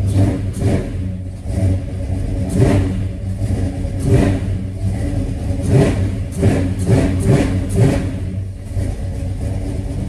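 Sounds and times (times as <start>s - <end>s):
car engine idling and revving: 0.0s - 10.0s.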